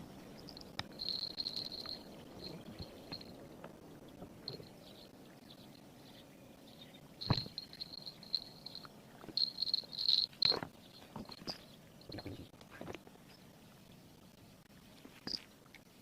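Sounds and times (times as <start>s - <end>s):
insects chirring: 0.0s - 12.5s.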